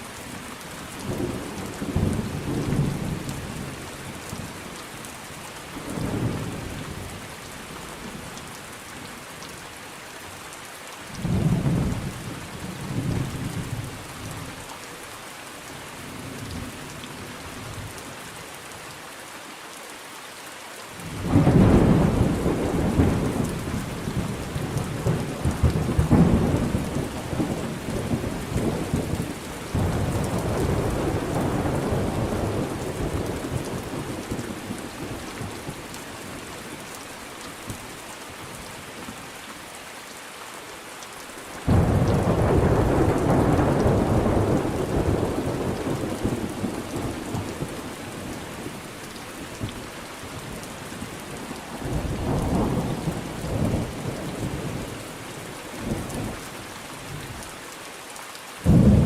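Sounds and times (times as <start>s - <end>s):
steady rain falling: 0.0s - 59.0s
thunder rumbling: 21.2s - 35.8s, 41.7s - 48.4s, 58.7s - 59.0s.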